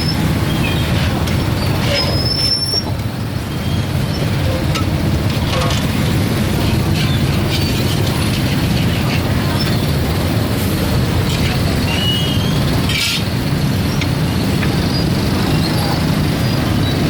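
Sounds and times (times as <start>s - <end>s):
traffic engine rumble: 0.0s - 17.0s
faint voices: 4.3s - 13.1s, 14.6s - 16.7s.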